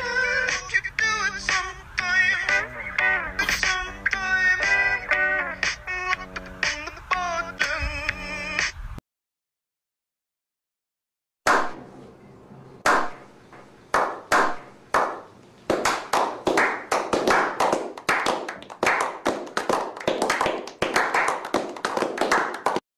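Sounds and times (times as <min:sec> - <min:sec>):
people clapping: 0:13.9 - 0:22.8.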